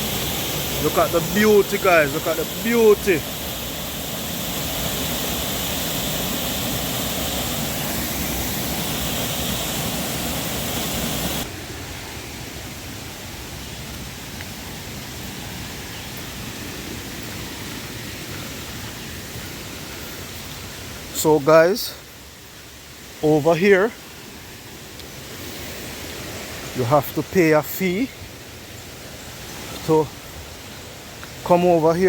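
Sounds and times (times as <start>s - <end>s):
waterfall rushing: 0.0s - 21.6s.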